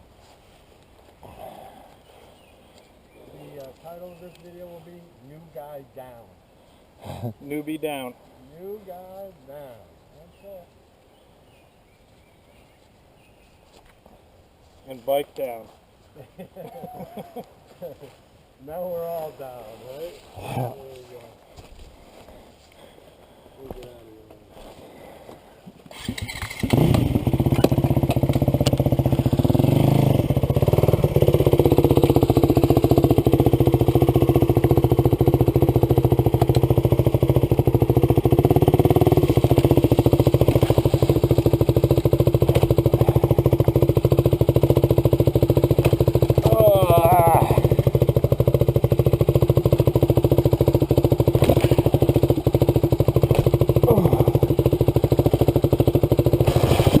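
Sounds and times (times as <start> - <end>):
dirt bike engine running: 26.0 - 57.0.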